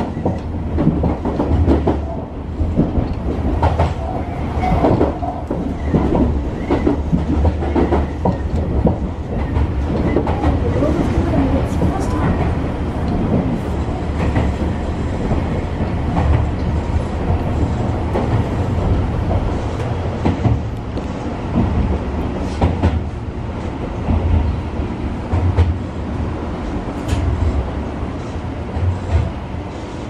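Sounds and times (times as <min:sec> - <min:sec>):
wheels clicking over rail joints: 0:00.0 - 0:23.1
rumble of train wheels on rail: 0:00.0 - 0:30.0.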